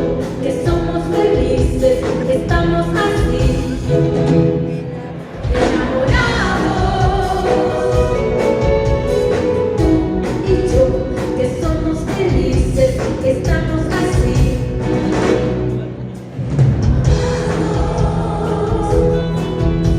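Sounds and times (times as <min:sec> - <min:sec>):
live band playing: 0:00.0 - 0:19.9
people singing: 0:00.2 - 0:04.0, 0:04.7 - 0:08.6, 0:17.0 - 0:19.9.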